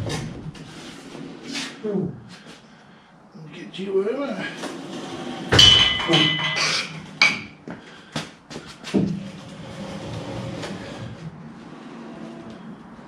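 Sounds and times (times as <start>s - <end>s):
metal clanks and knocks: 5.5s - 7.6s.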